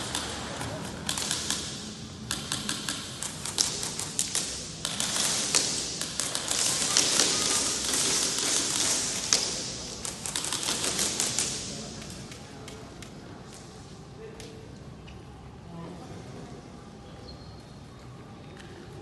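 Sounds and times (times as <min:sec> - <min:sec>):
airsoft guns firing: 0:00.0 - 0:11.9.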